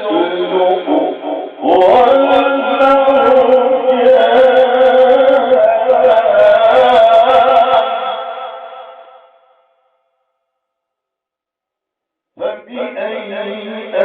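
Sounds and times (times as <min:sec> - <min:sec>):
man reciting melodically: 0:00.0 - 0:09.0, 0:12.4 - 0:14.0.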